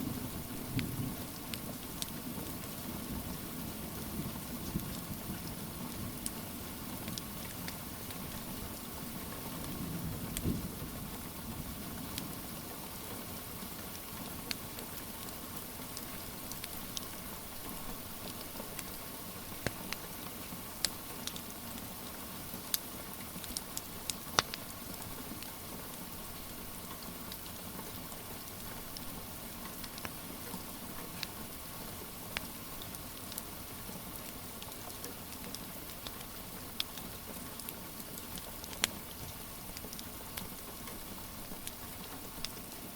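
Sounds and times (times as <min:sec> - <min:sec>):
steady rain hiss: 0:00.0 - 0:42.9
wood fire popping and crackling: 0:00.4 - 0:08.8, 0:13.9 - 0:21.8, 0:23.4 - 0:26.2, 0:34.2 - 0:42.9.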